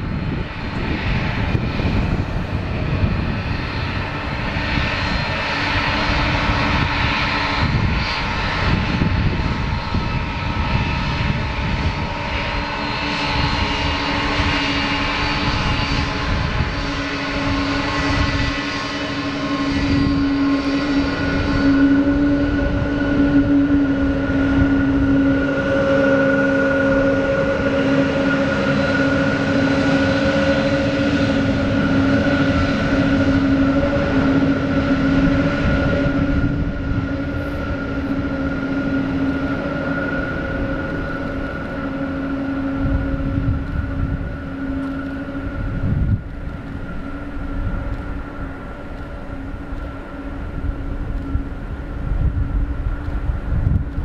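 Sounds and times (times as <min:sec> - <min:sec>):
jet engines whining: 0:00.0 - 0:54.0
wind rumbling on microphone: 0:00.0 - 0:54.0.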